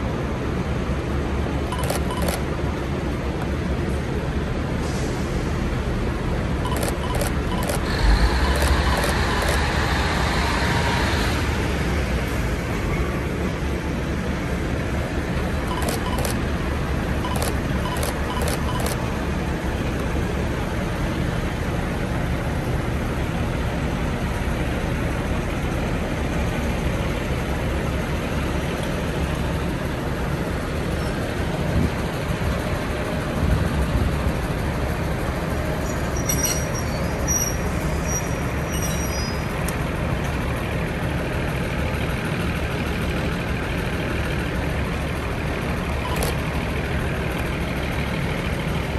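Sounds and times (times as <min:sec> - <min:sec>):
diesel railcar engine rumble: 0:00.0 - 0:48.9
sharp clicks: 0:15.7 - 0:16.4, 0:17.3 - 0:19.0
brief high squeaks: 0:35.9 - 0:39.5.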